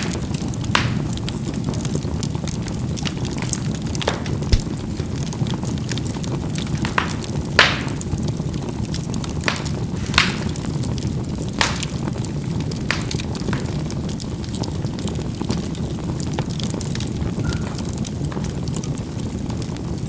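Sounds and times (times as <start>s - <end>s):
coals popping and crackling: 0.0s - 20.0s
fire rumbling: 0.0s - 20.0s
low thump: 4.5s - 4.7s.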